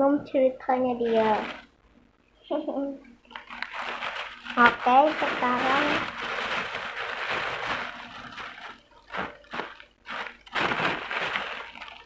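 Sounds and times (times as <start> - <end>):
packaging crinkling and crunching: 1.0 - 1.7, 3.3 - 12.0.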